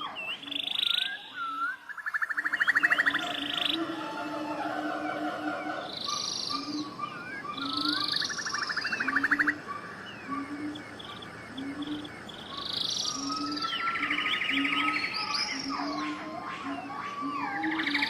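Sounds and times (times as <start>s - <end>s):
rapid bird trill: 0.0s - 18.0s
wild birds singing: 0.0s - 18.0s.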